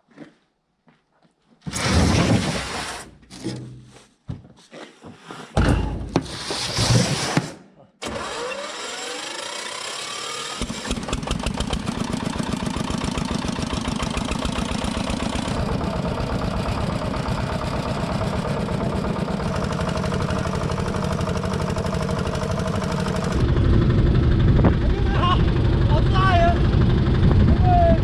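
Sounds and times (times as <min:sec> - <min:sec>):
boat engine starting and running: 0:08.0 - 0:28.0.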